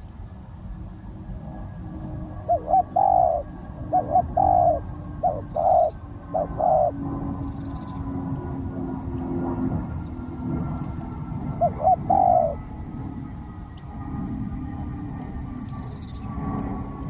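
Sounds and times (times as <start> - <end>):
dove cooing: 2.3 - 8.0, 10.7 - 12.9.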